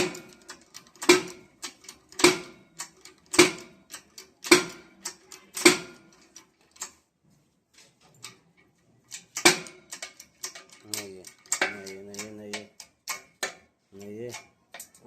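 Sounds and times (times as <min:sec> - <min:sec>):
hammer striking metal: 0:01.0 - 0:01.5, 0:02.2 - 0:02.7, 0:03.3 - 0:03.8, 0:04.4 - 0:05.0, 0:05.6 - 0:06.2, 0:09.4 - 0:10.6.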